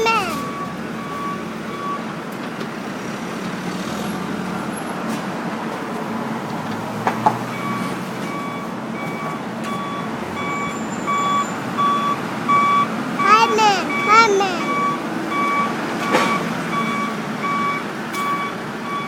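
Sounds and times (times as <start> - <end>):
heavy vehicle engine running: 0.0 - 19.0
reversing alarm beeping: 0.3 - 2.1, 7.5 - 19.0.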